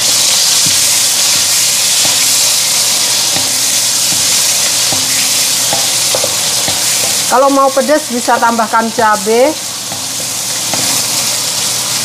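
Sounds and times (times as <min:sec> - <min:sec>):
spice paste sizzling in a wok: 0:00.0 - 0:12.0
wooden spatula knocking on a pan: 0:00.5 - 0:07.3, 0:09.9 - 0:11.1.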